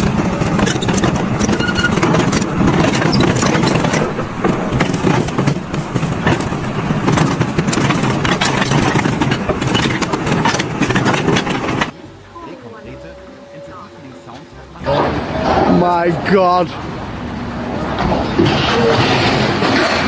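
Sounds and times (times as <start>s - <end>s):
engine running steadily: 0.0s - 20.0s
rattling and knocking: 0.0s - 20.0s.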